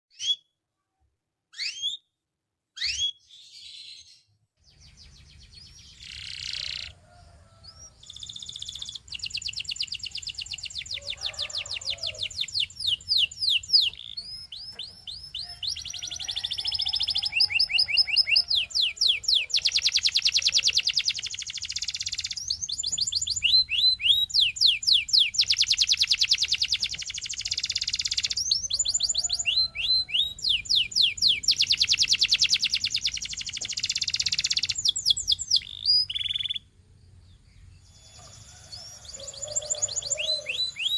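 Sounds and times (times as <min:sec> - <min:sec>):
canary singing trills: 0:01.5 - 0:02.1, 0:02.8 - 0:36.7, 0:37.4 - 0:40.9.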